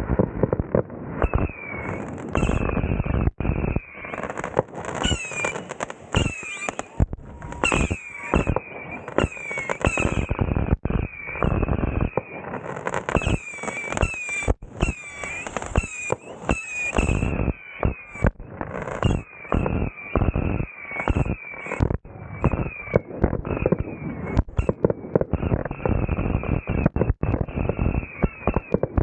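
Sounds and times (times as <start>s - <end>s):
fireworks cracks and bangs: 0.0s - 29.0s
whistling fireworks: 0.0s - 29.0s.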